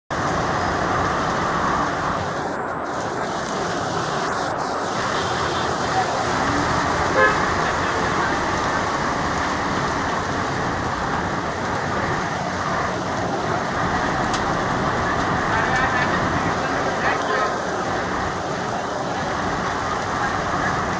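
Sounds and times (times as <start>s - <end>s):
heavy rain falling: 0.1s - 20.9s
vehicle horn toot: 7.1s - 8.0s.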